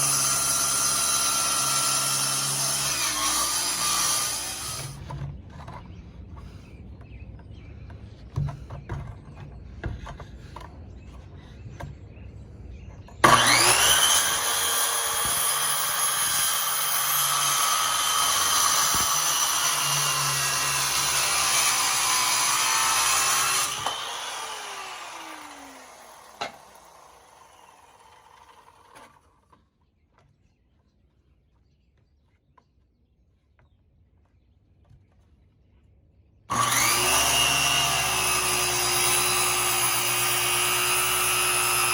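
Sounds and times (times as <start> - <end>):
saw winding down: 0.0 - 5.0, 13.2 - 29.3, 36.5 - 41.9
electric saw cutting wood: 0.0 - 5.1, 13.2 - 29.3, 36.5 - 41.9.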